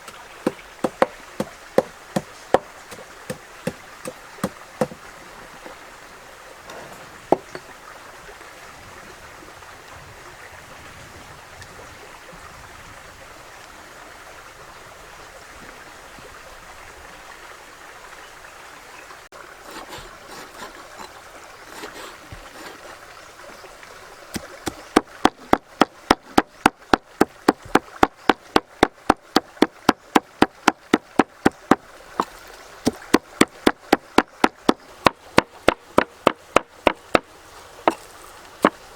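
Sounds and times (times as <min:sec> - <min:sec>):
water trickling: 0:00.0 - 0:09.0, 0:18.9 - 0:38.9
knife chopping on cutting board: 0:00.1 - 0:05.0, 0:24.4 - 0:26.5.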